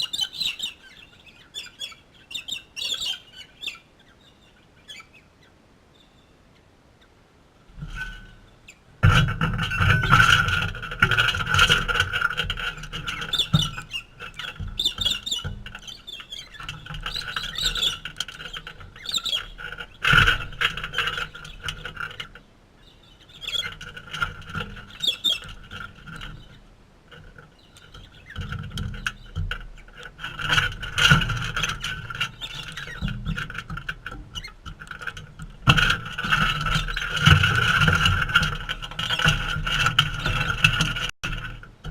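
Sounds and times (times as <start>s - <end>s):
galahs squealing chatter: 0.0s - 7.2s, 12.8s - 21.7s, 22.8s - 24.1s, 24.8s - 26.7s.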